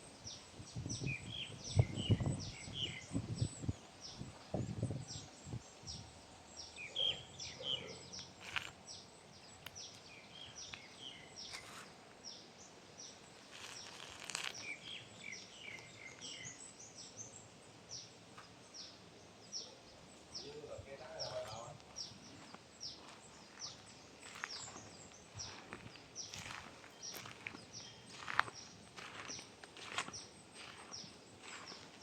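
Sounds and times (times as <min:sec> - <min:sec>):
small birds chirping: 0:00.1 - 0:32.0.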